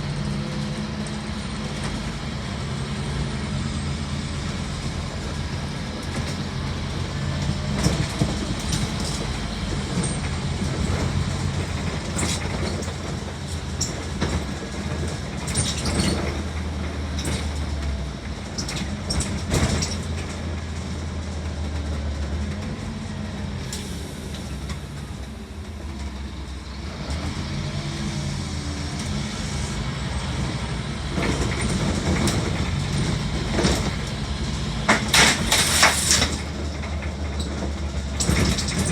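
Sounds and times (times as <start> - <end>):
bus engine hum: 0.0 - 38.9
interior rattles clicking: 30.0 - 38.9.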